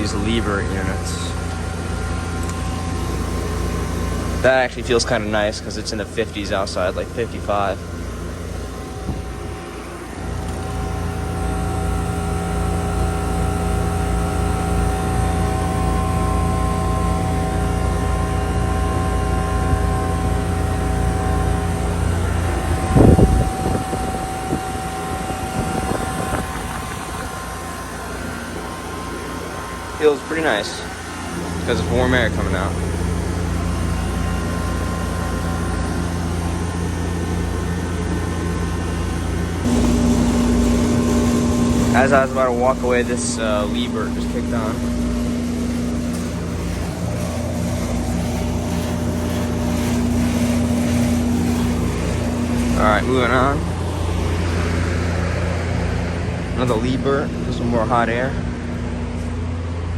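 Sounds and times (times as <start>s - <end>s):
air conditioner unit humming: 0.0s - 59.9s
high steady whine: 0.0s - 59.9s
loud rumble: 39.2s - 59.9s.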